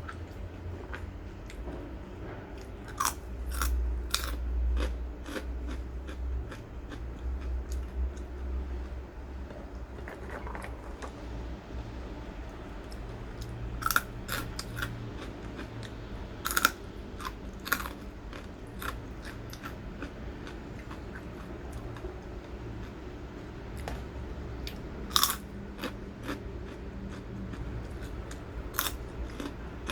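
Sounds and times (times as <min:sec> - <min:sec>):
crackers crunching: 0:02.9 - 0:05.8, 0:06.5 - 0:11.2, 0:16.4 - 0:19.8, 0:25.1 - 0:26.4, 0:27.2 - 0:29.9.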